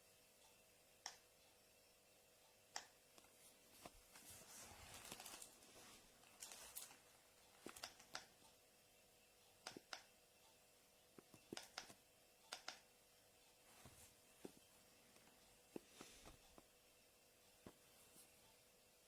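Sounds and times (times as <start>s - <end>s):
soft rustle: 3.2s - 7.8s, 13.6s - 16.7s, 17.5s - 18.6s
faint sharp clicks: 11.2s - 12.9s.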